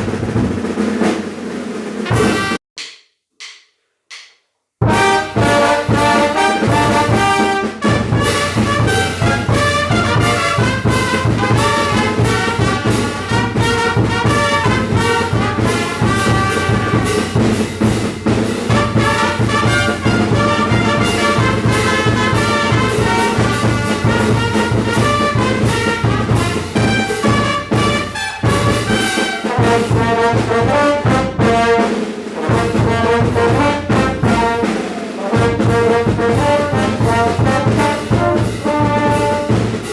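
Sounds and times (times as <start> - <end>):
steady percussion beat: 0.0 - 39.9
low brass bass line: 2.0 - 2.6, 4.8 - 17.7, 18.6 - 31.9, 32.5 - 39.7
trumpets and trombones melody: 2.0 - 2.6, 4.8 - 39.9.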